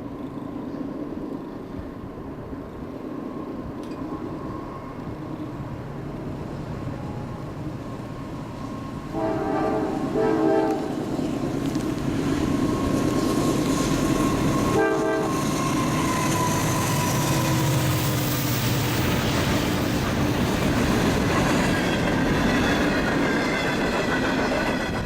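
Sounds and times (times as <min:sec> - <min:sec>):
freight train rolling: 0:00.0 - 0:25.0
locomotive horn blasts: 0:09.1 - 0:11.0, 0:14.7 - 0:15.4.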